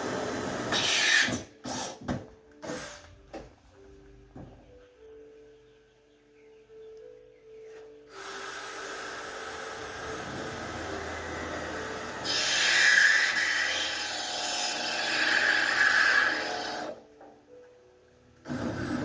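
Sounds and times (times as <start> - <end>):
electric drill boring metal: 8.1 - 17.0
drill bit squealing: 12.0 - 16.9.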